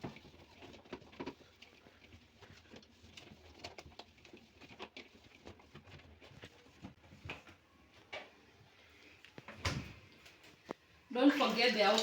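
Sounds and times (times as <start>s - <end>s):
cloth wiping fridge door: 4.2s - 7.2s.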